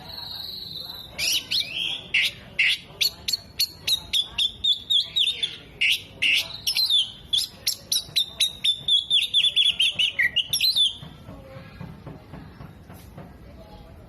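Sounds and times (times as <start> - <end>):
bird singing sharp chirps and trills: 0.0 - 11.1.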